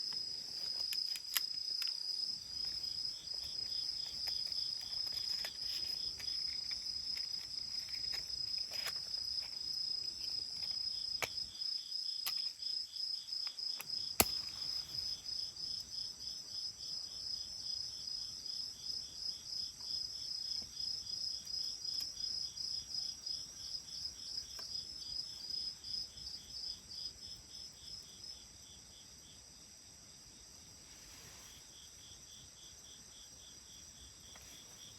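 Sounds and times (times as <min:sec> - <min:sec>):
insect chirping: 0:00.0 - 0:34.9
sharp cracks: 0:13.8 - 0:15.2.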